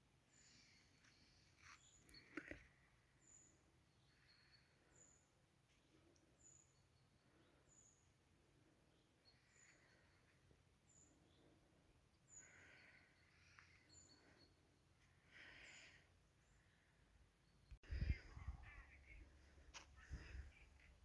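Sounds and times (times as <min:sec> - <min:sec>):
bird chirping: 0:00.3 - 0:08.2, 0:08.9 - 0:14.6.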